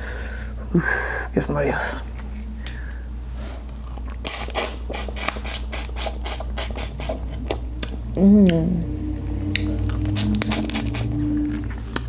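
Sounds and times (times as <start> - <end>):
wet chewing and lip-smacking: 3.7 - 8.6, 9.5 - 12.0.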